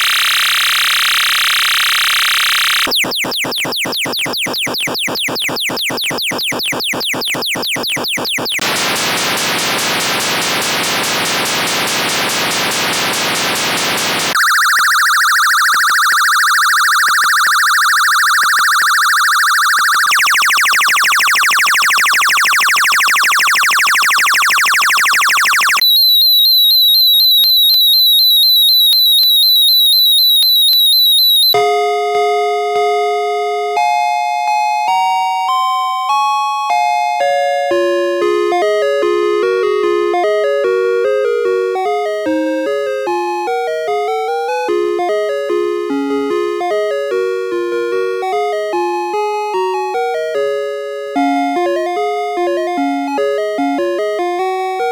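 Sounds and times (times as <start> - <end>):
fast-warbling electronic buzz: 2.2 - 26.6
hissing falling electronic sweeps: 8.6 - 26.2.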